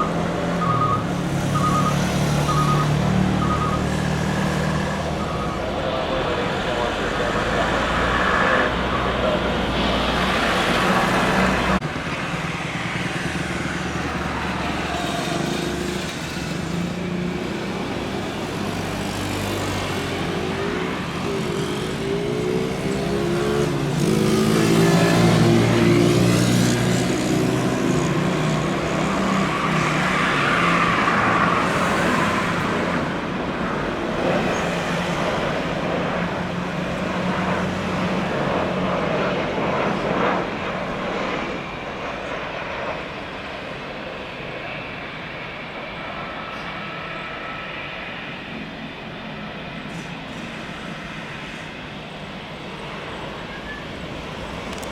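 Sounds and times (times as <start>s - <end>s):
jet airliner passing low: 0.0s - 54.9s.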